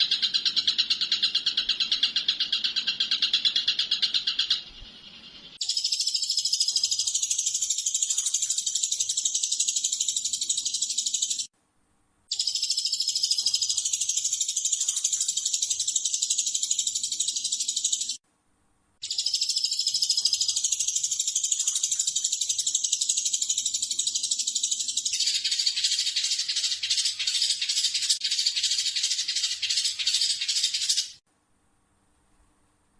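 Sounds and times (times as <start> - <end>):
rattling bird trill: 0.0 - 4.8, 19.0 - 31.2
songbird chattering song: 0.0 - 11.5, 12.3 - 18.2, 19.0 - 31.2.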